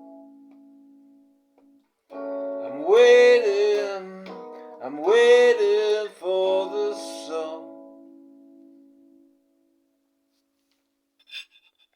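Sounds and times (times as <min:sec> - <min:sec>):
electric guitar chords: 0:00.0 - 0:10.1
man singing: 0:02.6 - 0:07.9.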